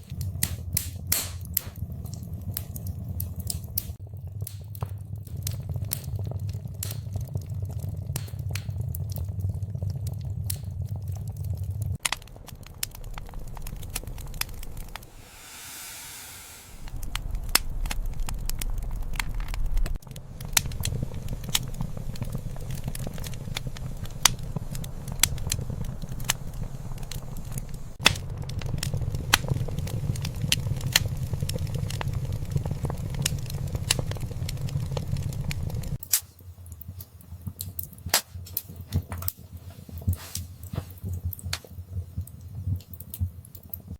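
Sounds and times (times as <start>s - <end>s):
low rumble of flames: 0.0s - 43.9s
wood fire crackling and popping: 0.0s - 43.9s
short hiss: 15.1s - 16.9s.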